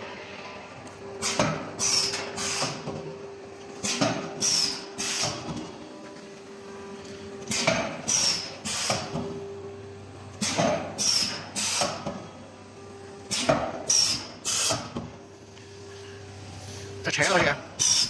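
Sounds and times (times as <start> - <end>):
steady machine hum: 0.0 - 18.0
machine strokes: 15.7 - 18.0.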